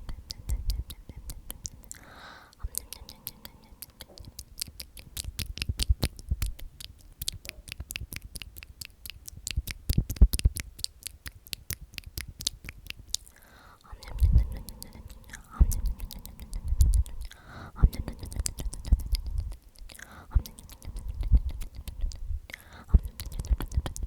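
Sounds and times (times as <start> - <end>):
breathy whisper: 0.0 - 7.4, 13.1 - 24.0
rapid crisp clicks and taps: 0.0 - 13.4.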